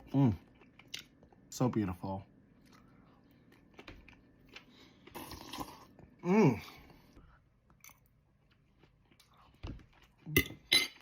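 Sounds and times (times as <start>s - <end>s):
person chewing: 0.0s - 1.5s, 2.5s - 11.0s.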